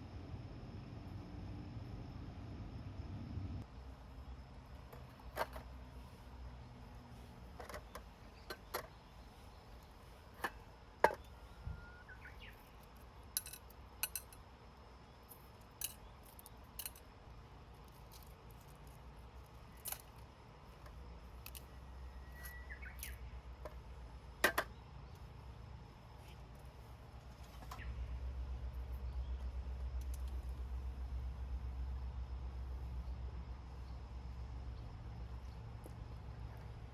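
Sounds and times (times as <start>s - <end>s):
thin whistling tone: 11.4s - 12.6s, 21.9s - 23.2s.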